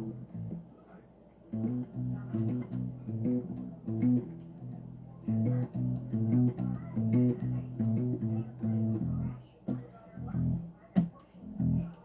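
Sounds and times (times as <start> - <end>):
electric bass guitar riff: 0.0 - 0.5, 1.6 - 4.4, 5.3 - 9.4, 10.2 - 10.6, 11.5 - 11.9.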